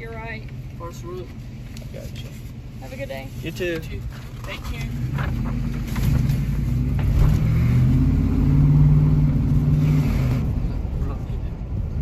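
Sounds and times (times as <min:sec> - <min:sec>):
vehicle engine accelerating: 0:05.0 - 0:11.1.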